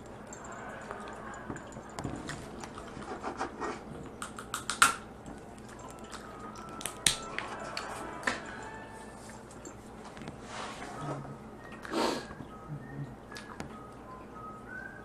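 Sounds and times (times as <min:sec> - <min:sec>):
crab shell cracking: 0:04.2 - 0:05.0.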